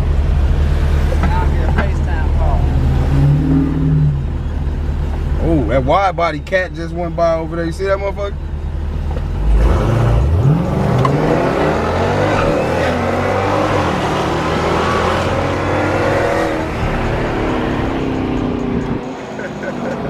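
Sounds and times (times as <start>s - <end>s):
car engine at full throttle: 0.0s - 20.0s.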